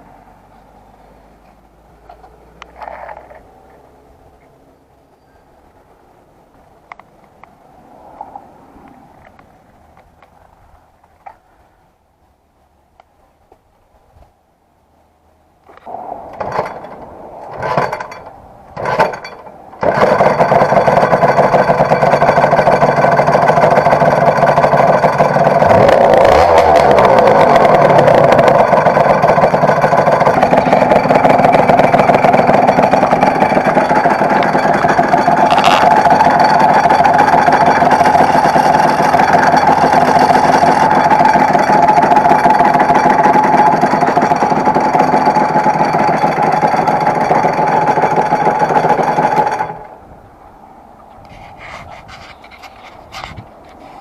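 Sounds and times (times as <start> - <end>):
two-stroke motorcycle engine starting: 2.1 - 3.4, 16.3 - 50.0.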